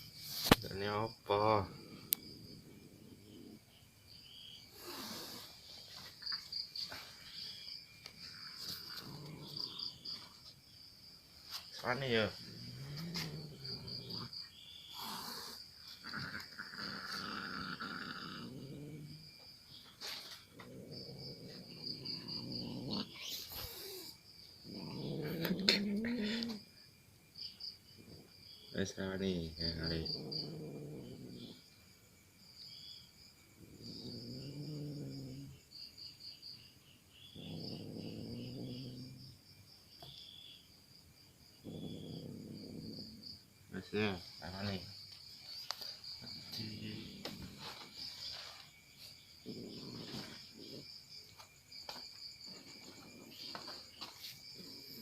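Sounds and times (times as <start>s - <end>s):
crickets chirping: 0.0s - 55.0s
cat growling: 1.4s - 3.8s, 4.4s - 6.1s, 8.2s - 10.5s, 11.9s - 19.4s, 20.0s - 26.7s, 28.0s - 28.4s, 29.2s - 31.6s, 33.6s - 35.6s, 37.2s - 39.4s, 41.6s - 44.2s, 45.7s - 55.0s.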